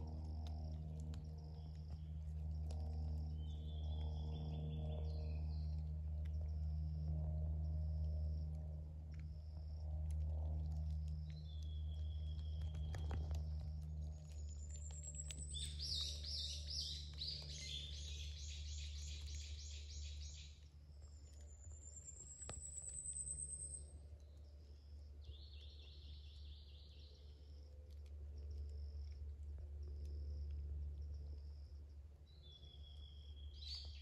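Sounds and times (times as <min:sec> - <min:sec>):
steady low rumble: 0:00.0 - 0:34.0
birds singing: 0:11.1 - 0:24.6, 0:32.3 - 0:34.0.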